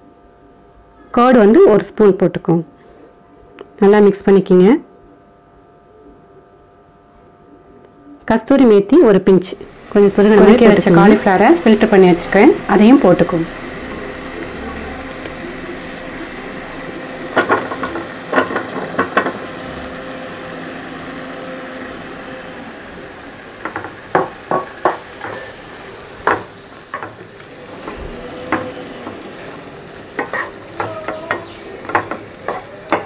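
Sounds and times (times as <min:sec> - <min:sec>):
vegetables sizzling in a pan: 0:09.4 - 0:33.0
wooden spatula stirring in pan: 0:09.6 - 0:22.3, 0:23.6 - 0:33.0.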